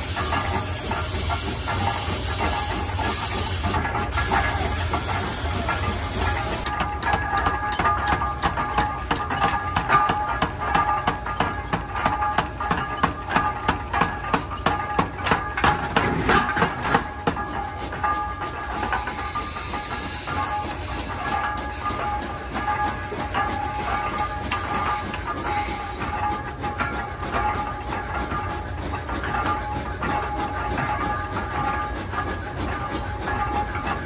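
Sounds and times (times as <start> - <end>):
steady hiss: 0.0 - 6.7
hammer striking hot metal: 0.0 - 34.0.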